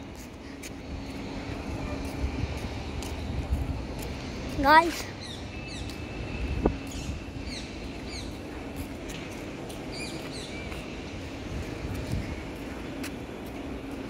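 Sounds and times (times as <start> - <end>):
small birds chirping: 4.6 - 8.9, 9.7 - 11.2.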